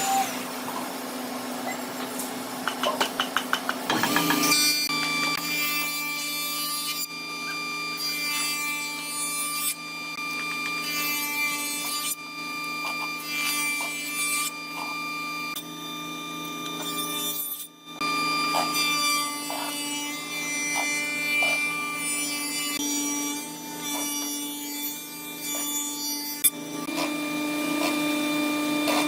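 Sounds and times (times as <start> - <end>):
machine cutting wood: 0.0 - 2.0, 2.6 - 15.6, 16.5 - 29.0
woodworking machine humming: 0.0 - 6.5.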